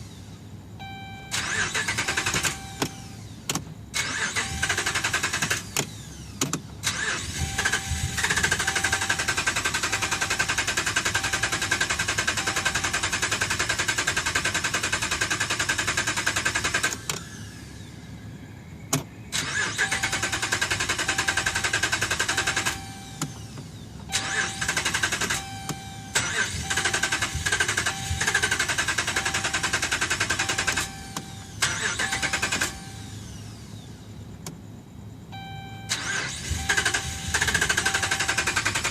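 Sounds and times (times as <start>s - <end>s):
short beep: 0.8s - 3.2s, 22.3s - 23.4s, 24.1s - 27.1s, 27.8s - 28.5s, 30.4s - 31.4s, 35.3s - 37.3s
starter cranking engine: 1.4s - 2.6s, 4.0s - 5.9s, 6.8s - 17.1s, 19.4s - 22.9s, 24.2s - 25.6s, 26.2s - 31.0s, 31.6s - 32.8s, 35.9s - 38.9s.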